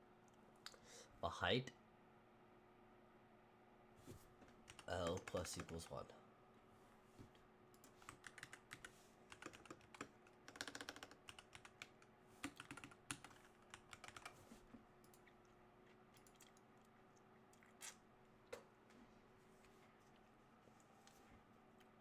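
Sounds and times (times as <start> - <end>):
computer keyboard typing: 4.5 - 5.9, 7.8 - 14.4.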